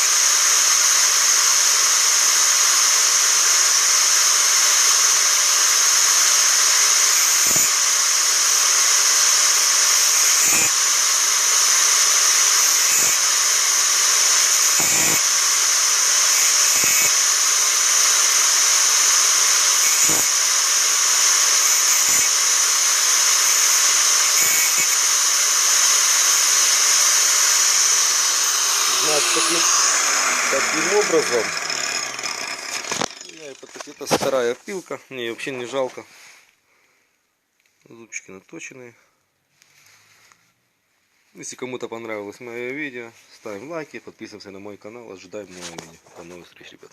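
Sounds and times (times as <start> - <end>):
angle grinder whining: 0.0 - 34.6.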